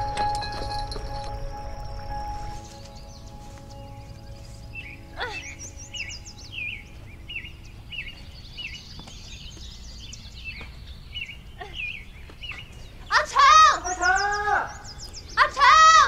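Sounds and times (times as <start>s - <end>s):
higher chirps and trills: 0.0s - 8.5s
low background rumble: 0.0s - 8.8s.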